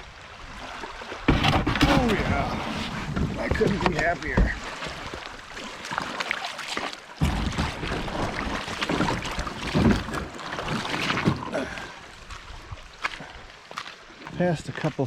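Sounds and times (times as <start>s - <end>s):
water sloshing: 0.0s - 15.0s
canoe knocks and scrapes: 1.2s - 11.6s
wind rumbling on microphone: 1.3s - 5.0s.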